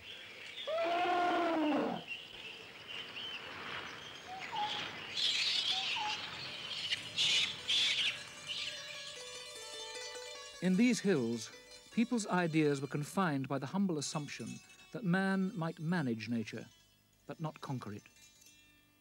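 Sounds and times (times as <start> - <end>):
harsh rasping bird calls: 0.0 - 2.2, 4.2 - 8.8
forest birds calling: 0.0 - 9.0.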